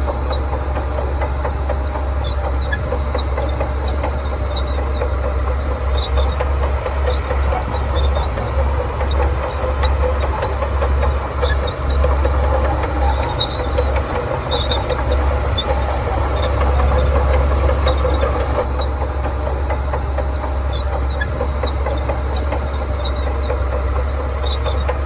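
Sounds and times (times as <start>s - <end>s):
bulldozer diesel engine rumbling: 0.0s - 25.0s
high-pitched squeaks: 2.2s - 19.0s.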